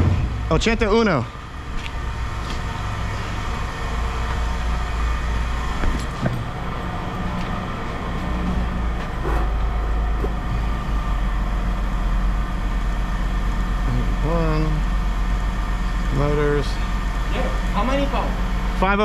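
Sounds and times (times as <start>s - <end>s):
vehicle engine idling: 0.2s - 19.0s
short knocks: 5.8s - 10.7s.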